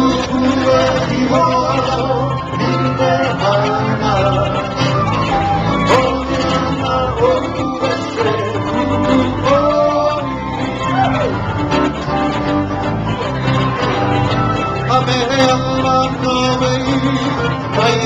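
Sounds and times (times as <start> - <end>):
man singing: 0.0 - 11.0, 14.8 - 18.0
plucked guitar: 0.0 - 18.0.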